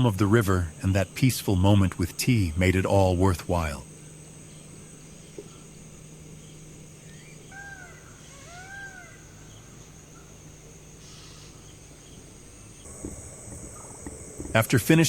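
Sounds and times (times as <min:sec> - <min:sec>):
low steady hum: 0:00.0 - 0:08.4, 0:11.7 - 0:15.0
bird calls: 0:00.0 - 0:10.4, 0:11.0 - 0:15.0
insects droning: 0:00.0 - 0:15.0.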